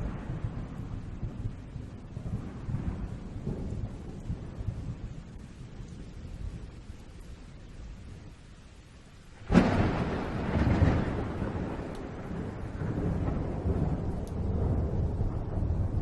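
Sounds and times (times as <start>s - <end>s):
thunder crack: 0.0s - 5.4s, 9.4s - 16.0s
thunder rumbling: 0.0s - 16.0s.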